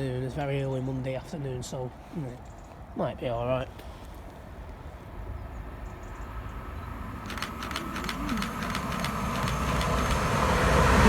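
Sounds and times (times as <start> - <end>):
train rumble: 5.4 - 11.0
wheels clicking over rail joints: 7.2 - 11.0.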